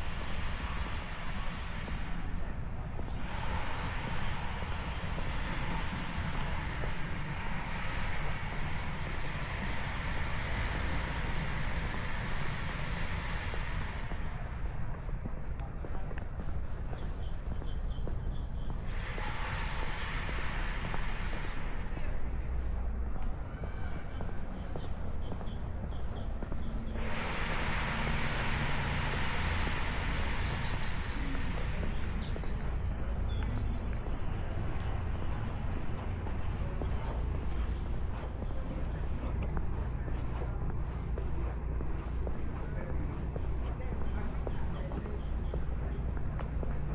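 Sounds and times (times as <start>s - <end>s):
low outdoor rumble: 0.0s - 46.9s
songbird chirping and trilling: 29.7s - 34.6s.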